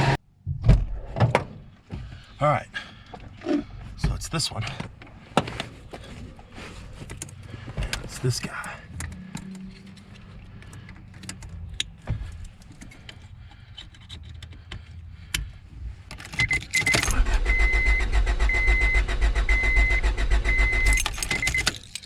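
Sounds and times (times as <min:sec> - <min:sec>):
engine cranking on starter: 0:16.8 - 0:21.6.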